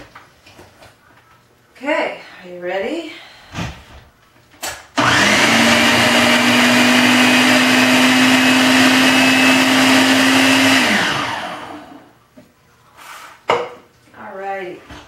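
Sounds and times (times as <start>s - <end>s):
blender whirring: 5.0s - 12.1s.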